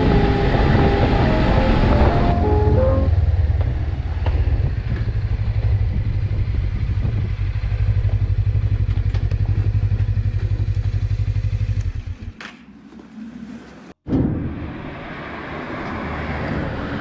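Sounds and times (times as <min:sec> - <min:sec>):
motorcycle engine running: 0:00.0 - 0:12.4.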